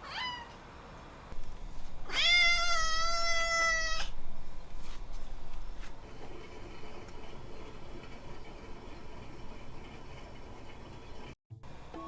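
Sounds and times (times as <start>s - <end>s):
cat meowing: 0.0s - 0.6s, 2.1s - 4.1s.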